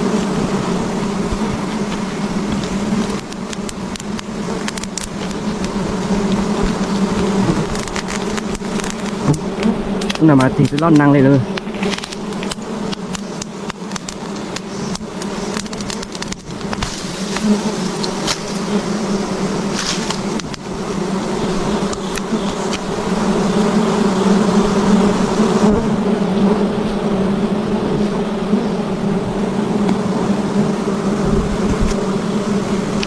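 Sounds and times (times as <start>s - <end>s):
bees buzzing: 0.0s - 33.0s
sharp clicks and knocks: 1.3s - 18.6s.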